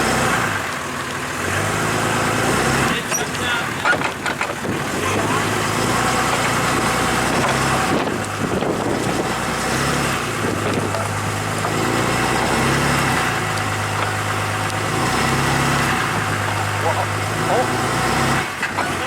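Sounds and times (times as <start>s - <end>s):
vehicle engine running: 0.0s - 19.0s
wind noise on microphone: 3.8s - 12.2s, 15.8s - 16.6s.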